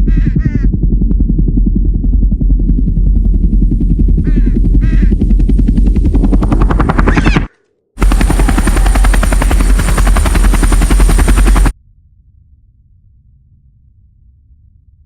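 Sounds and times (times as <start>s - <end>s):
machine with fast chopping beat: 5.2s - 11.7s.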